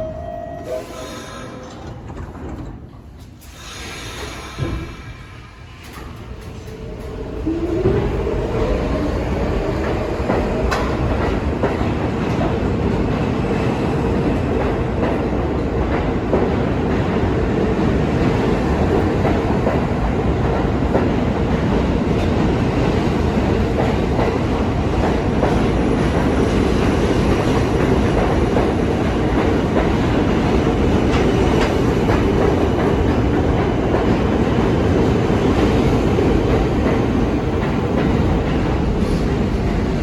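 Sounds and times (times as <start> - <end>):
subway train rumbling: 0.0 - 40.0.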